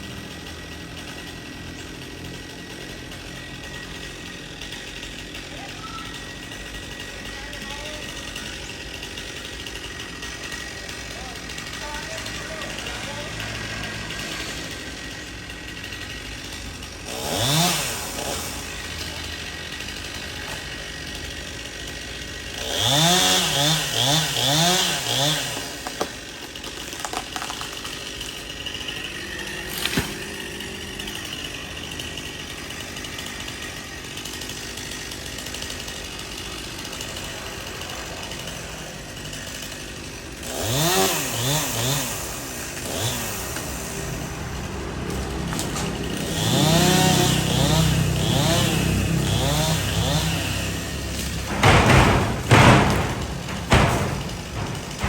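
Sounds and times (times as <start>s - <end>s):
chainsaw idling and revving: 0.0s - 55.0s
sharp knock: 51.3s - 55.0s.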